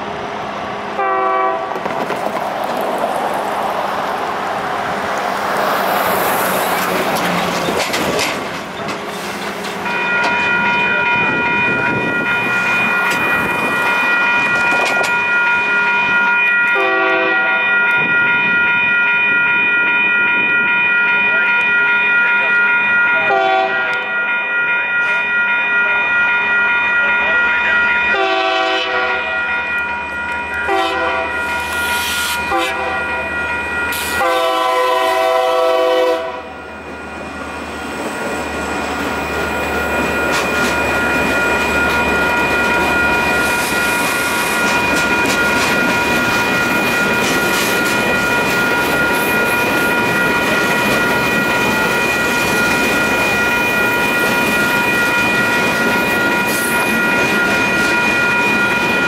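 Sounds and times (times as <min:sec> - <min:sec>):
locomotive horn blasts: 0:01.0 - 0:01.8, 0:16.7 - 0:17.8, 0:23.3 - 0:24.2, 0:28.1 - 0:29.4, 0:30.7 - 0:31.5, 0:32.2 - 0:33.2, 0:33.9 - 0:36.6
freight cars rolling with wheel clatter: 0:01.7 - 0:16.2, 0:37.9 - 0:59.0
crossing bells ringing: 0:03.2 - 0:59.0.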